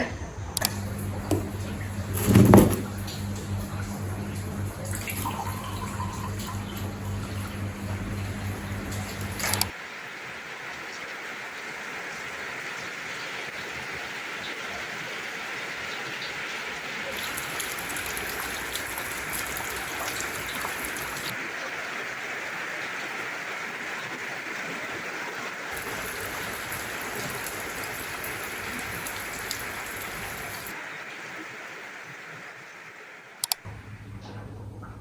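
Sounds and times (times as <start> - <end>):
steady rain falling: 0.6 - 34.0
sharp click: 33.4 - 33.6.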